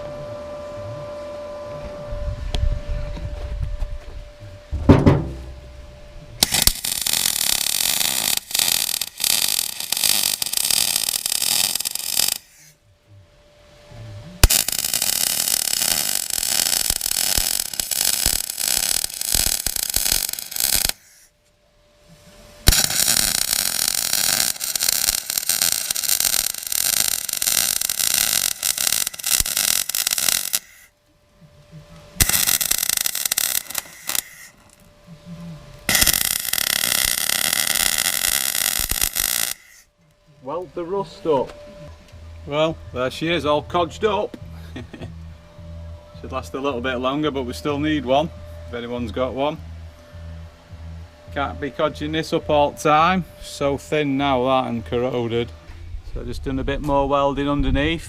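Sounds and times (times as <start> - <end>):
welder crackling and sputtering: 6.3 - 12.8, 14.2 - 21.6, 22.2 - 45.3.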